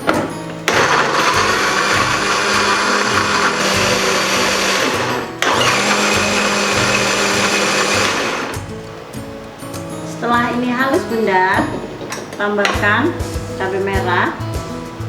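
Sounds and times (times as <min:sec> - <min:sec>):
electric blender grinding: 0:00.7 - 0:08.7.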